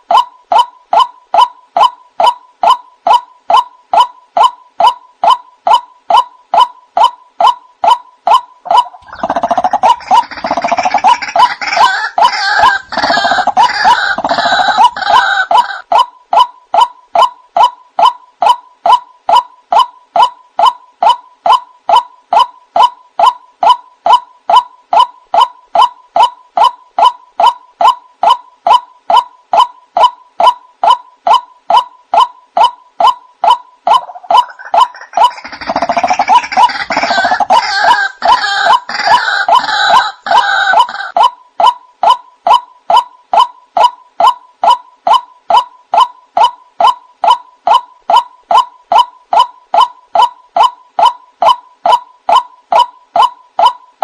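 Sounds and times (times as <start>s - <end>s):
waterhen harsh croaking calls: 0.0s - 23.8s, 25.0s - 53.8s.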